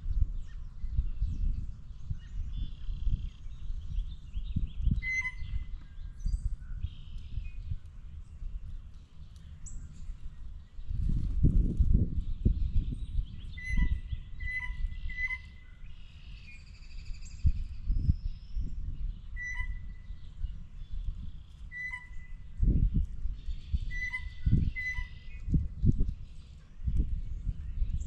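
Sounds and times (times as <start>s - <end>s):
birds calling high notes: 4.9s - 5.7s, 13.5s - 16.4s, 19.3s - 20.4s, 21.7s - 22.4s, 23.7s - 25.5s.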